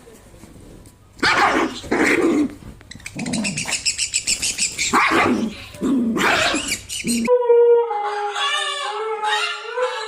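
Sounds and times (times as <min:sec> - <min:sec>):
parrots chirping: 0:02.9 - 0:07.3
dog barking: 0:04.9 - 0:05.5.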